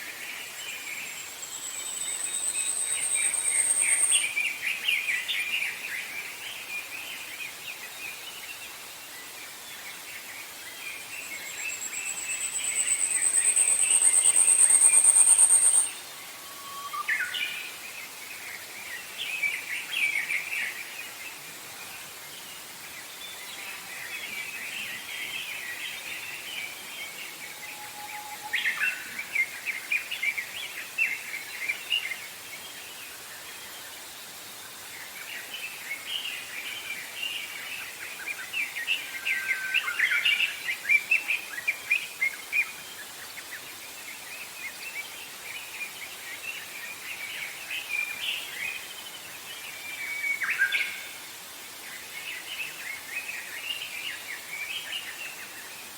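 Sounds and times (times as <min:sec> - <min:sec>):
faint hiss: 0:00.0 - 0:55.9
songbirds chirping and trilling: 0:09.2 - 0:21.2.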